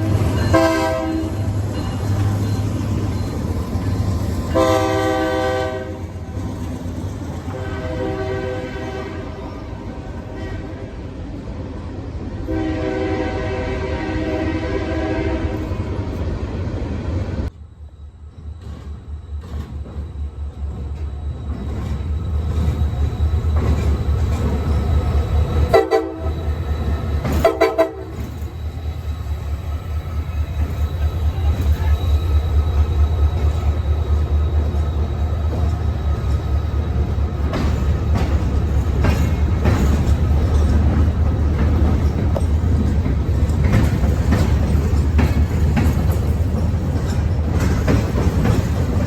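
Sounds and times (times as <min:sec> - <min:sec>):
locomotive horn: 0:00.0 - 0:01.6, 0:04.5 - 0:06.2, 0:07.5 - 0:11.0, 0:12.4 - 0:15.9, 0:25.7 - 0:26.5, 0:27.3 - 0:28.3
train rumbling past: 0:00.0 - 0:49.0.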